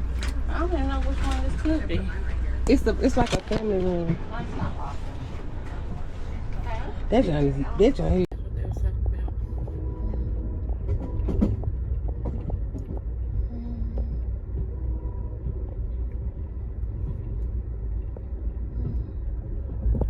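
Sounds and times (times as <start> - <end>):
vehicle rumble from inside: 0.0 - 20.0
faint clicks and rattles: 8.1 - 20.0.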